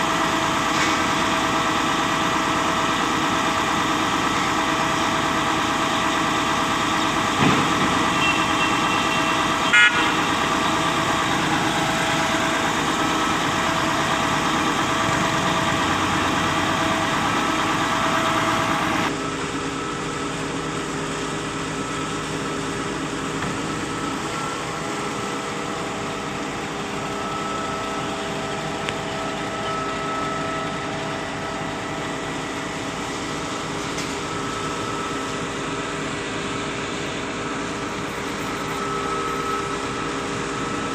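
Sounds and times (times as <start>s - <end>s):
concrete pump engine whining: 0.0s - 40.9s
short horn toot: 8.2s - 10.3s.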